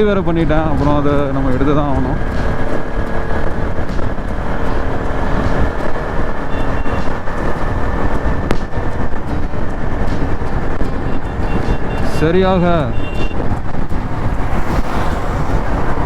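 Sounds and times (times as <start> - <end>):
motorcycle engine at speed: 0.0 - 16.0
road and wind noise: 0.0 - 16.0.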